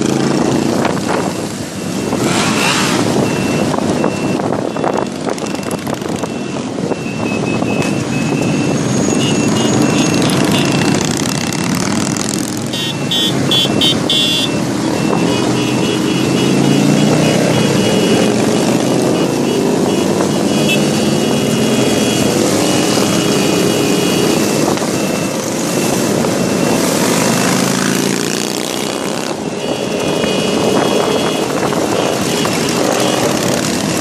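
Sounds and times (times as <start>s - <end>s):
motorcycle engines revving: 0.0s - 34.0s
short high beeps: 1.3s - 11.1s.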